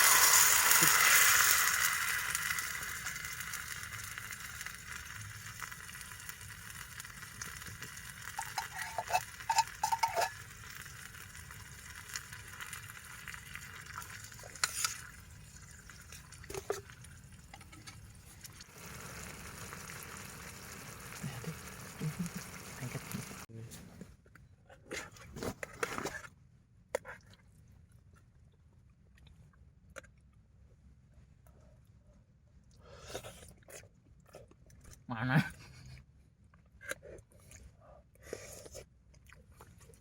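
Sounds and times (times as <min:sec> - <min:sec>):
pan sizzling: 0:00.0 - 0:18.0, 0:18.6 - 0:23.5.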